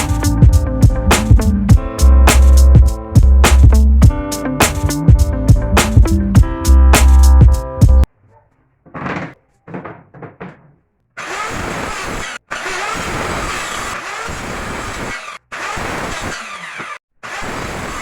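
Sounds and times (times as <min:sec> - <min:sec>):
power tool working wood: 0:11.2 - 0:18.0.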